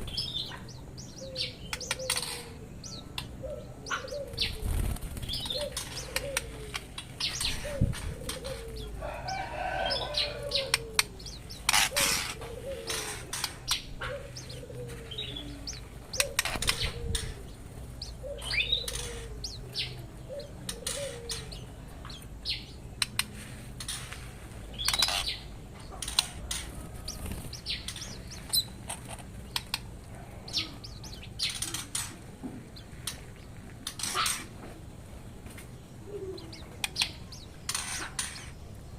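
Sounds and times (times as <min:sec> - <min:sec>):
songbirds chirping: 0:00.0 - 0:38.9
birds fluttering wings: 0:04.2 - 0:19.4, 0:26.0 - 0:30.1.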